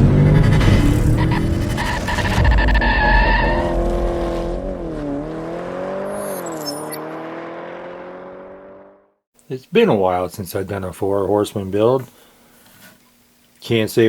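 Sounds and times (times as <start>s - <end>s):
car tyre noise: 0.0s - 7.1s
car engine revving: 0.0s - 9.1s.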